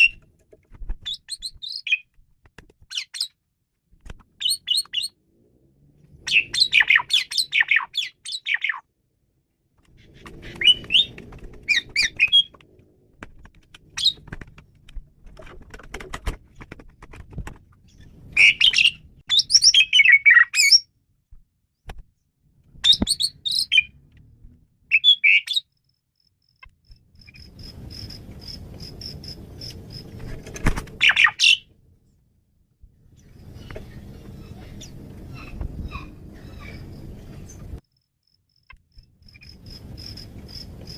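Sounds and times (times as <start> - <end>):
starling singing: 6.2 - 8.8, 10.0 - 12.6, 13.9 - 14.2, 18.0 - 20.9, 22.8 - 24.0, 31.0 - 31.7.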